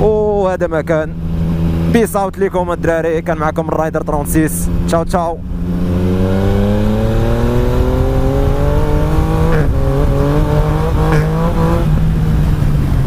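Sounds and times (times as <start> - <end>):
motorcycle engine accelerating: 1.1 - 13.0.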